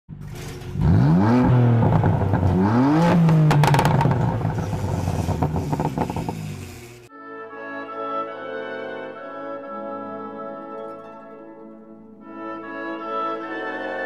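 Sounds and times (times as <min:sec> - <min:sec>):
car engine accelerating: 0:00.1 - 0:07.1.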